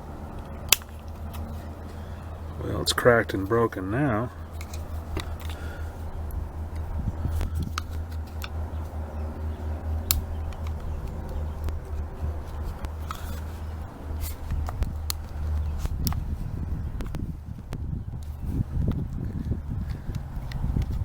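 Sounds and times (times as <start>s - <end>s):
steady low hum: 0.0s - 21.0s
plastic parts clicking: 0.4s - 1.6s, 4.5s - 8.9s.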